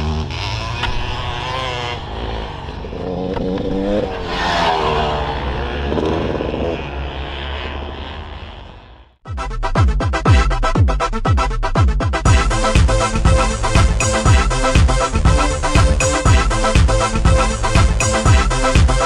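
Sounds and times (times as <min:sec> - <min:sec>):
dirt bike engine revving: 0:00.0 - 0:09.2.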